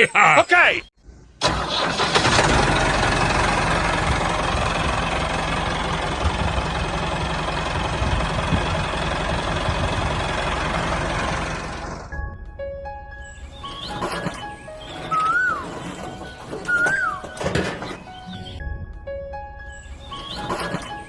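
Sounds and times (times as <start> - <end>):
tractor engine idling: 1.4 - 12.2.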